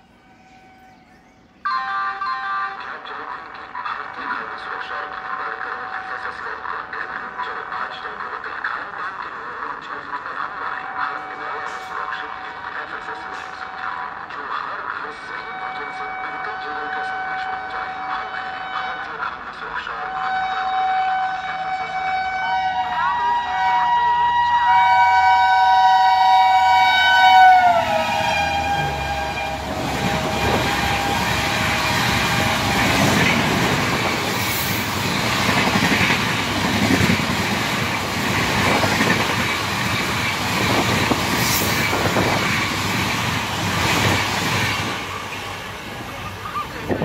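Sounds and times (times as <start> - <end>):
multi-tone train horn: 0.0 - 3.1, 15.2 - 35.8
coaches rushing and rail rumble: 25.6 - 47.0.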